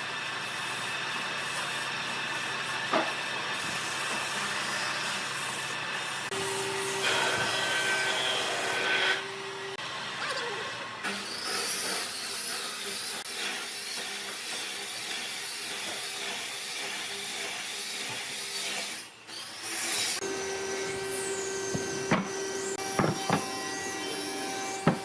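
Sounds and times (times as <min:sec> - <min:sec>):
power tool whirring: 0:19.3 - 0:25.0
machine humming: 0:20.2 - 0:25.0
sharp knocks: 0:21.6 - 0:23.9, 0:24.8 - 0:25.0.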